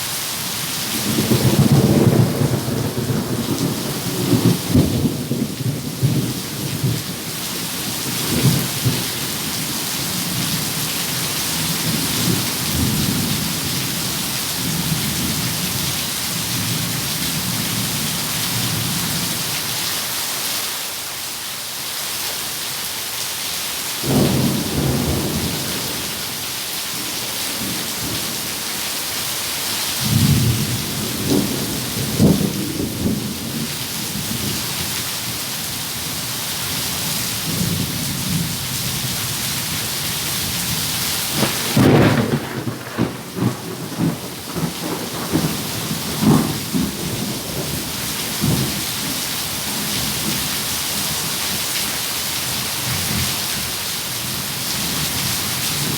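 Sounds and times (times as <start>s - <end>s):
steady rain: 0.0s - 55.9s
thunder rumbling and cracking: 1.0s - 17.9s, 24.1s - 26.4s, 30.0s - 34.6s, 40.5s - 50.5s.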